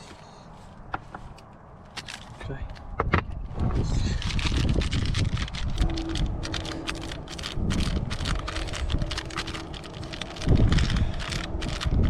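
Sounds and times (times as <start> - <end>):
wind rumble on microphone: 2.4 - 12.0.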